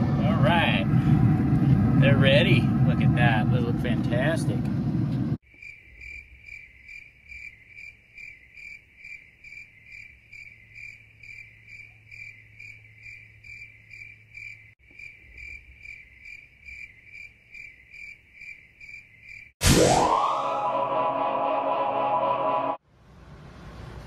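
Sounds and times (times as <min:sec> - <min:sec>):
crickets chirping: 0:05.4 - 0:19.6.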